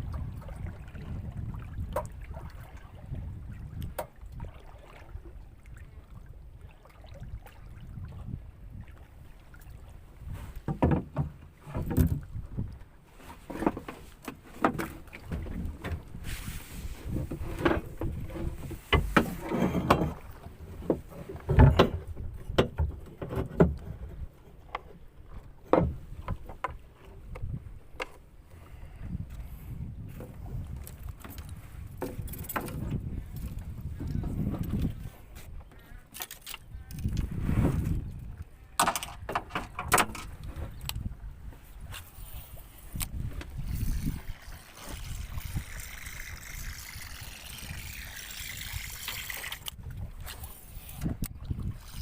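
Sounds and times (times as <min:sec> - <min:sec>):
wind rumble on microphone: 0:00.0 - 0:13.0, 0:14.7 - 0:24.4, 0:25.2 - 0:36.0, 0:36.6 - 0:52.0
irregular knocks and clunks: 0:10.6 - 0:12.2, 0:17.2 - 0:20.2, 0:20.8 - 0:24.1, 0:24.7 - 0:28.2.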